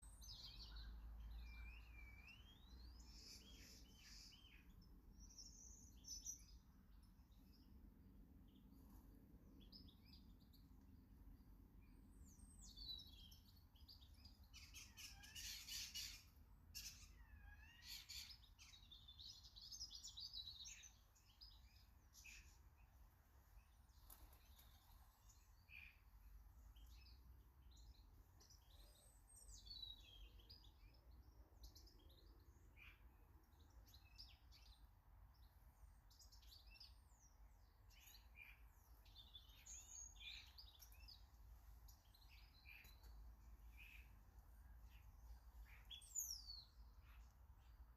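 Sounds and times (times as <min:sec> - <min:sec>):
birds chirping and singing: 0:12.0 - 0:22.6, 0:31.6 - 0:47.8.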